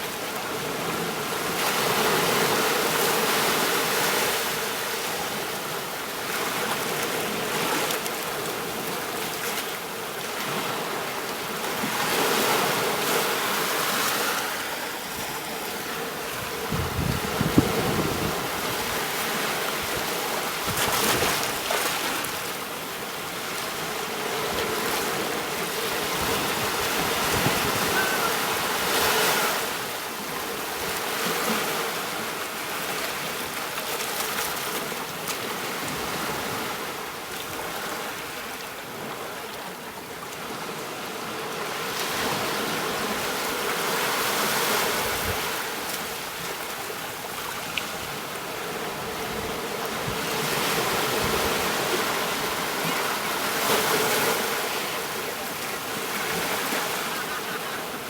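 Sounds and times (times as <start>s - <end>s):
sea waves washing onto beach: 0.0s - 58.0s.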